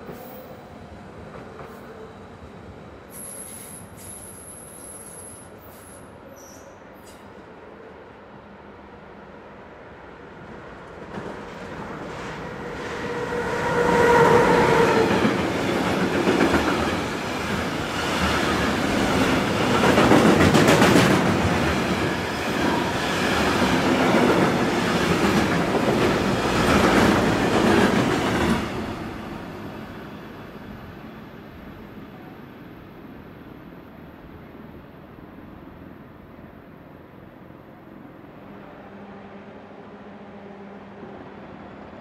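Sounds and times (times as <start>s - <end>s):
train whine: 0.0s - 42.0s.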